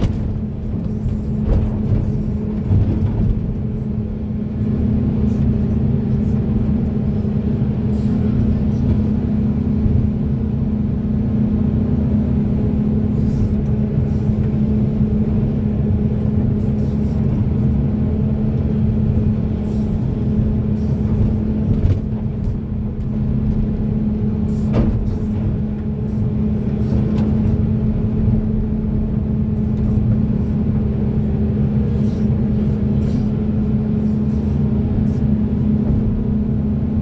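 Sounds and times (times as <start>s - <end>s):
excavator engine and hydraulics: 0.0s - 37.0s.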